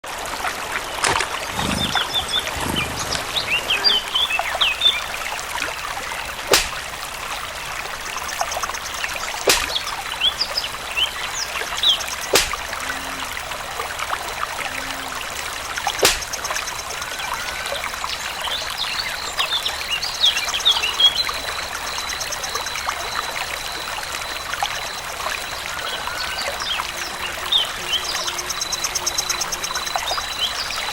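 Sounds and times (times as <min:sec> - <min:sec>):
water trickling: 0:00.1 - 0:30.9
sharp clicks: 0:06.5 - 0:07.0, 0:09.5 - 0:09.8, 0:12.3 - 0:12.8, 0:16.0 - 0:16.5.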